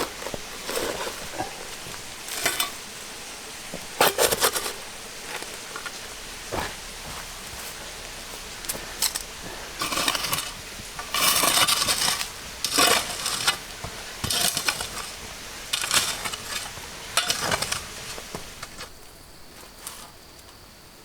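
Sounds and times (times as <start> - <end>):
dishes and cutlery clattering: 9.0 - 18.8.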